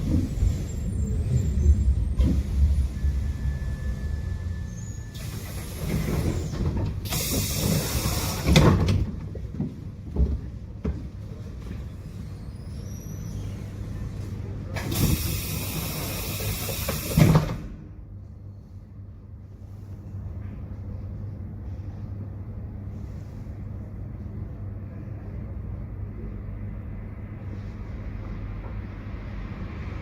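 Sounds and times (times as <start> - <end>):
tram doors thumping: 0.0 - 3.4, 5.1 - 11.6, 14.8 - 17.9
tram rumbling: 0.0 - 30.0
pneumatic doors hissing: 4.6 - 9.0, 14.8 - 17.8.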